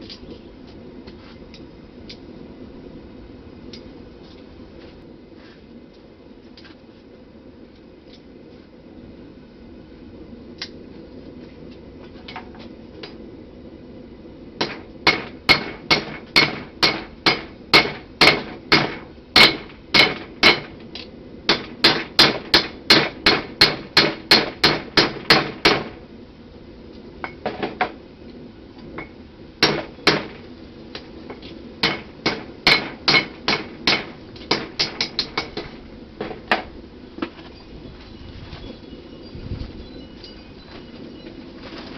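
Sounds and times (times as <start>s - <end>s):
low hum: 0.0s - 41.9s
hammer striking steel on anvil: 14.6s - 20.7s, 29.0s - 30.4s, 31.8s - 36.7s.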